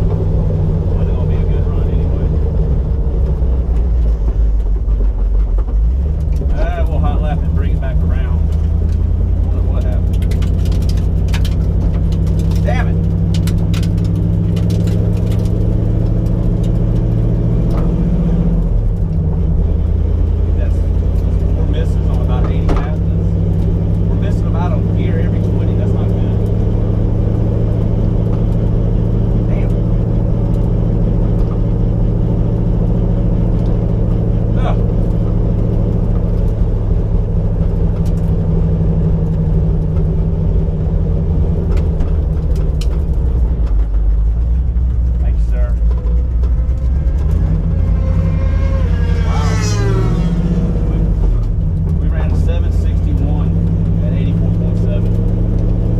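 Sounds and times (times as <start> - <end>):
car engine running at low revs: 0.0 - 55.9
faint clicks and rattles: 8.1 - 17.8.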